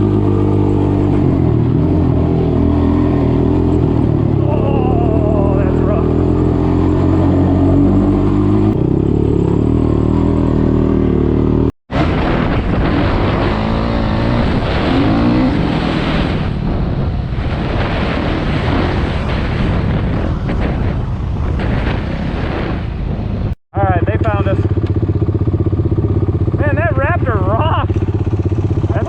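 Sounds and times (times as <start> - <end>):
single-cylinder engine running: 23.8 - 29.0.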